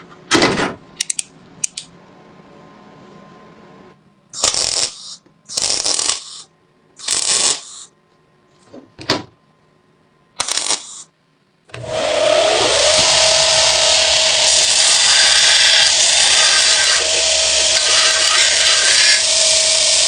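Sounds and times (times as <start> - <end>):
power tool whining: 11.7 - 20.0
rasping strokes: 11.8 - 20.0.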